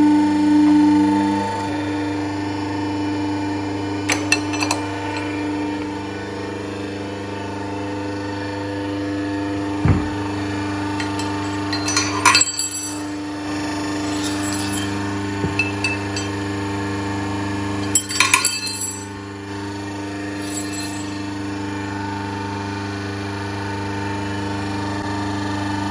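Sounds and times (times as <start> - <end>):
electric motor and pump hum: 0.0 - 25.9
metallic clinks and knocks: 4.1 - 5.4, 11.0 - 13.2, 13.9 - 16.4, 17.8 - 19.2, 20.4 - 21.4
low thump: 9.8 - 10.2.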